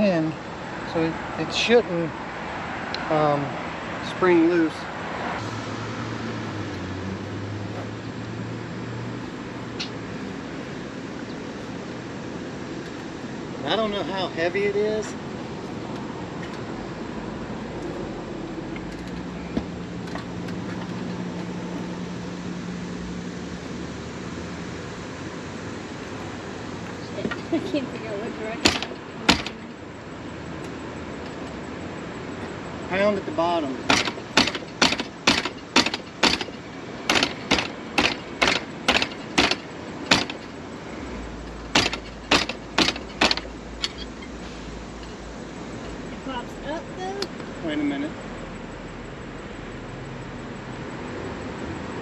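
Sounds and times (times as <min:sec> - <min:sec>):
steady mechanical hum: 0:03.0 - 0:52.0
pounding on metal hardware: 0:28.6 - 0:29.7, 0:33.8 - 0:40.6, 0:41.7 - 0:44.1.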